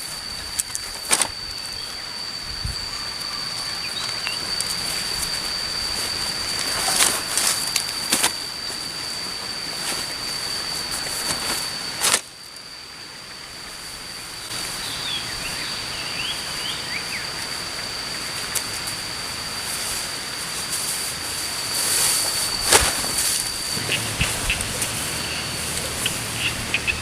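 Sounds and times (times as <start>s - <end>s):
high-pitched insect drone: 0.0s - 27.0s
bird chirps: 23.6s - 27.0s.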